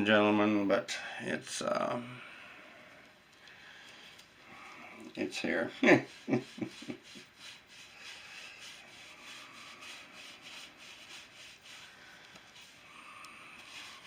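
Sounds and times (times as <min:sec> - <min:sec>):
rubbing strokes on wooden stick: 0:04.9 - 0:14.0.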